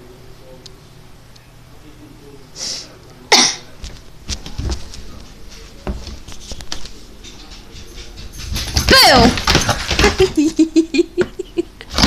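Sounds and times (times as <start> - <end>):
sharp cough-like burst: 3.3 - 3.7.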